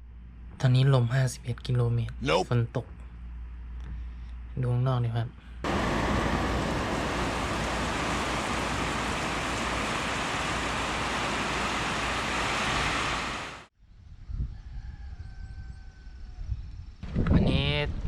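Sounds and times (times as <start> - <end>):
storm wind and rain: 5.6 - 13.7
distant rooster crowing: 14.4 - 16.5.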